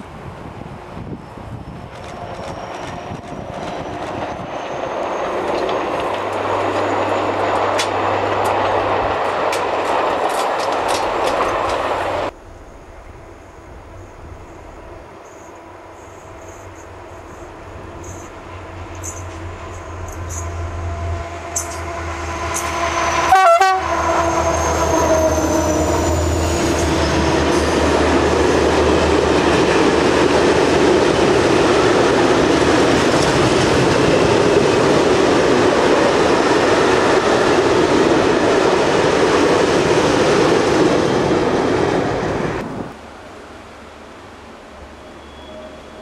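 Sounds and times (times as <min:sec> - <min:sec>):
diesel locomotive engine passing: 0:00.0 - 0:46.0
freight train rolling past: 0:00.0 - 0:46.0
locomotive horn blast: 0:18.0 - 0:27.8.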